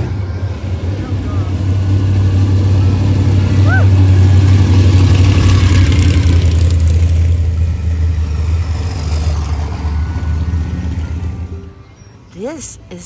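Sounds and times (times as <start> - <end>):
vehicle engine running: 0.0 - 12.7.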